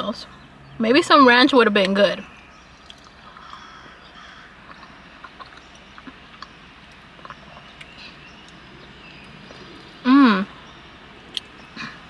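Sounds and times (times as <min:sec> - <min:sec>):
person chewing food: 0:02.8 - 0:10.0.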